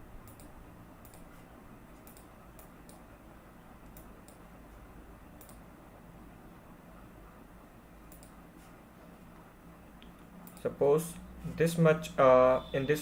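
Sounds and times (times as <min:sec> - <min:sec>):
low steady hum: 0:00.0 - 0:13.0
computer mouse clicks: 0:00.2 - 0:01.4, 0:02.0 - 0:03.1, 0:03.8 - 0:04.5, 0:05.4 - 0:05.6, 0:08.1 - 0:08.4, 0:10.0 - 0:10.8.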